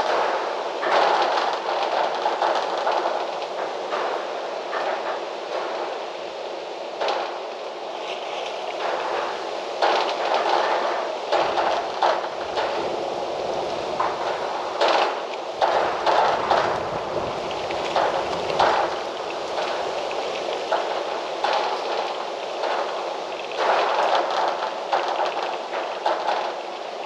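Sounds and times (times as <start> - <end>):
wind through trees: 0.0 - 27.0
short rattles and knocks: 14.0 - 27.0.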